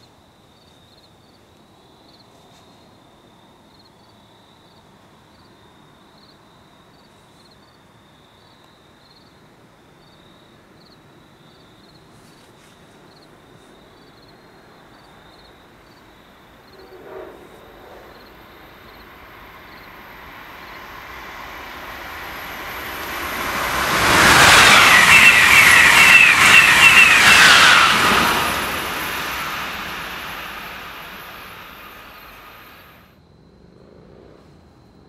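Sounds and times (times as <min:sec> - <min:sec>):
high whine of passing train: 0:08.1 - 0:33.2
train wheels rushing on rails: 0:16.6 - 0:33.1.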